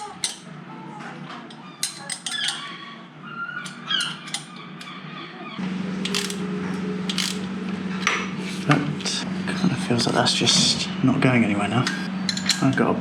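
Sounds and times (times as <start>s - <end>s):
metal clicks and squeaks: 0.0s - 0.5s, 1.3s - 6.4s, 7.1s - 7.5s
steady low hum: 5.5s - 13.0s.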